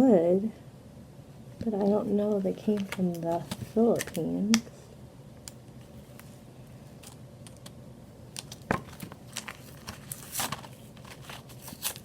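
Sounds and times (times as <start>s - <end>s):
battery pack clicks and crinkles: 2.6s - 4.7s.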